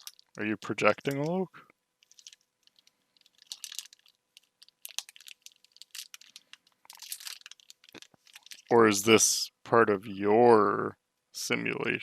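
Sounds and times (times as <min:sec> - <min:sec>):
foil wrappers crinkling: 0:00.0 - 0:01.3, 0:02.0 - 0:08.7.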